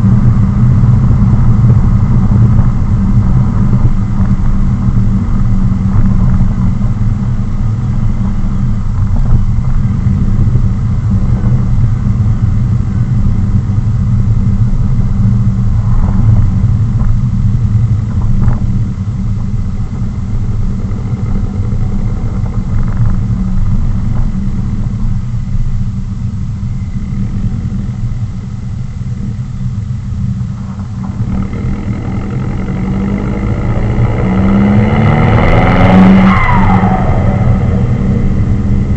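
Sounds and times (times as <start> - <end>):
car engine exhaust note: 0.0 - 38.9
car engine revving: 17.9 - 25.6, 30.4 - 38.9.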